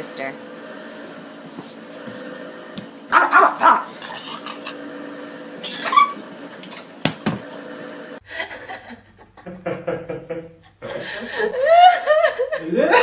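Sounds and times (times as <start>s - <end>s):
dog barking: 3.1s - 4.0s.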